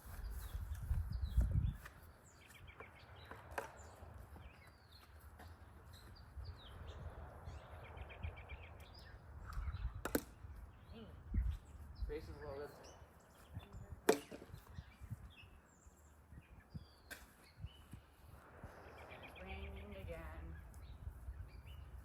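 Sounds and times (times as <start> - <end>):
wind rumble on microphone: 0.0 - 5.0, 5.7 - 22.0
songbirds chirping: 0.0 - 22.0.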